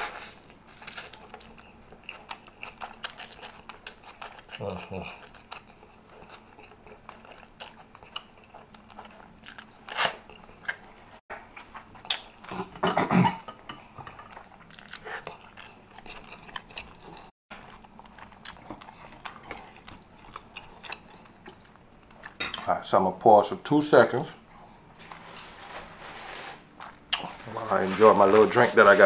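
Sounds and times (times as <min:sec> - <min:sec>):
chewing and slurping: 0:00.0 - 0:22.6.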